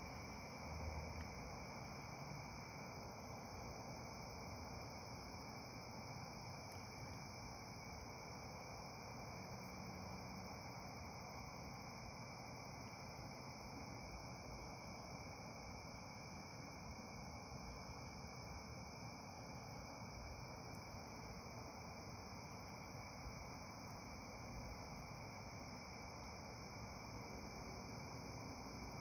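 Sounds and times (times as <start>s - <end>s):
crickets chirring: 0.0s - 29.0s
faint low hiss: 0.0s - 29.0s.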